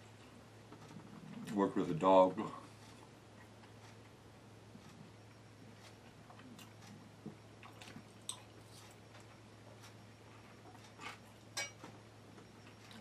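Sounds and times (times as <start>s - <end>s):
steady low hum: 0.0s - 13.0s
chewing and mouth clicks: 5.8s - 10.0s, 12.6s - 13.0s.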